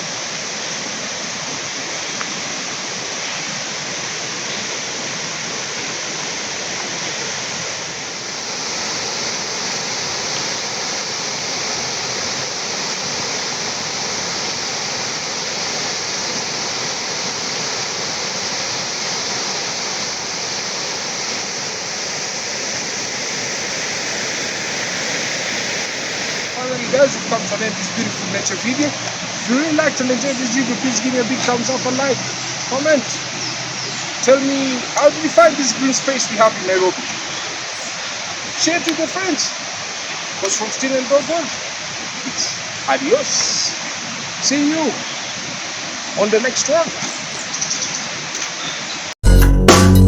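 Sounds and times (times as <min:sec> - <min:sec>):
river water rushing: 0:00.0 - 0:49.2.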